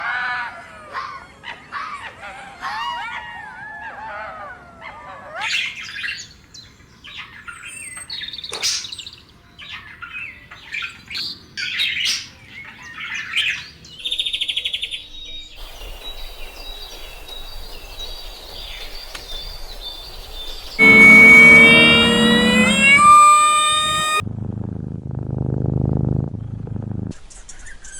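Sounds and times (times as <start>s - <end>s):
buzzing bird trill: 20.8s - 24.2s.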